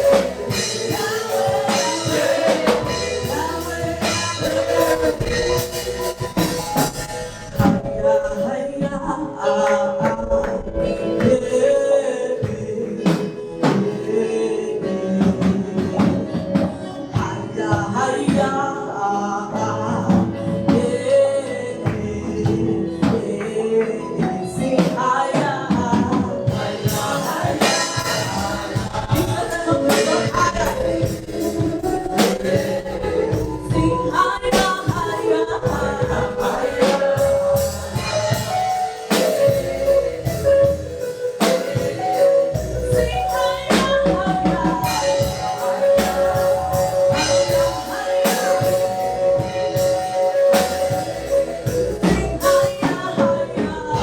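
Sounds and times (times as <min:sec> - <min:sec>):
band playing: 0:00.0 - 0:18.7, 0:19.6 - 0:54.0
choir and lead singers: 0:00.0 - 0:54.0
drums: 0:00.0 - 0:54.0.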